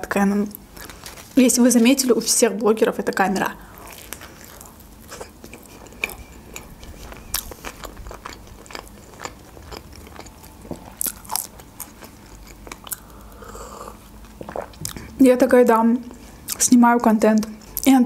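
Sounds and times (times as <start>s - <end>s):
person chewing food: 3.6s - 15.2s.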